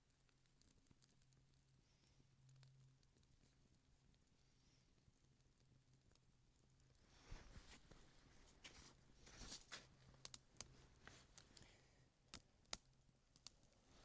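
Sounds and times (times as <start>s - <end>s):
faint rustling: 6.8s - 12.0s
kindling clicking and snapping: 9.4s - 13.7s.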